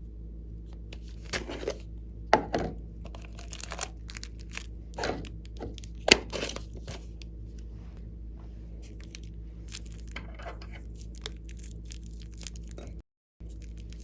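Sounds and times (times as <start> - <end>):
low hum: 0.0 - 14.0
slime sticky crackles: 8.8 - 14.0.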